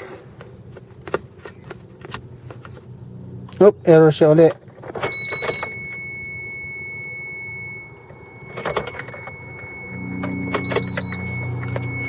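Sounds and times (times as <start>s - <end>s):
low steady hum: 0.0s - 12.0s
keys jangling and clicking: 4.5s - 6.1s, 8.1s - 12.0s
thin high-pitched tone: 5.1s - 12.0s.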